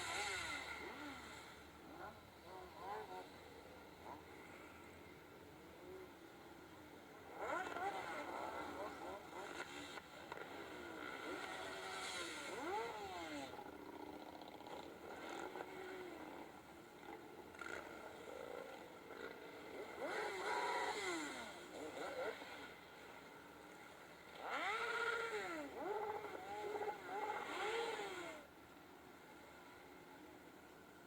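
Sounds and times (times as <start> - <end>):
motorcycle engine revving: 0.0 - 5.0, 5.8 - 28.5.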